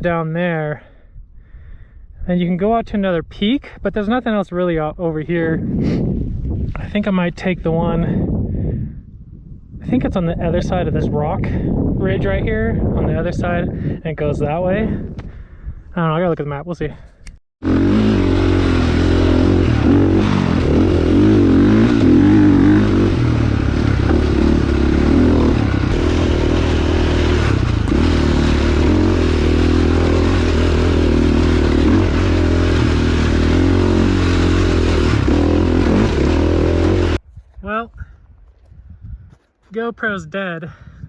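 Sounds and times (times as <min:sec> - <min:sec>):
dirt bike engine revving: 0:17.6 - 0:37.2.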